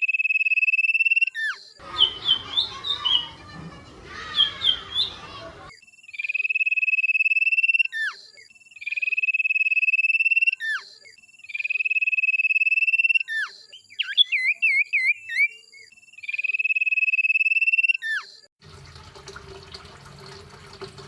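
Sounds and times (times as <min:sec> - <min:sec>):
songbird quick varied chirps: 0:01.8 - 0:05.7
songbird trills: 0:01.8 - 0:05.7.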